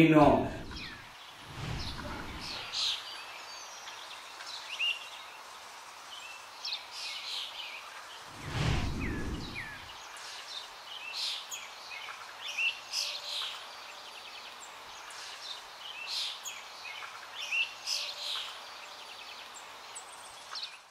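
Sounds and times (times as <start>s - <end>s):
small birds chirping: 0.0s - 20.9s
steady outdoor hiss: 0.0s - 20.9s
low rumble: 0.4s - 2.7s, 8.3s - 9.9s.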